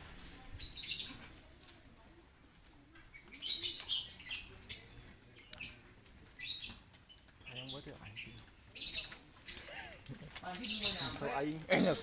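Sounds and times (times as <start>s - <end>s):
bird chirping: 3.0s - 11.4s.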